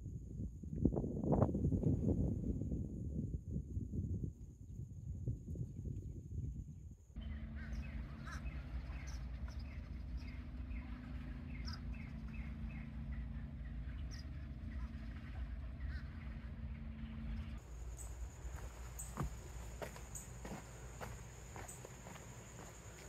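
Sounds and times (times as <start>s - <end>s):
wind noise: 0.0s - 9.0s
steady low hum: 0.0s - 23.0s
birds chirping: 7.2s - 23.0s.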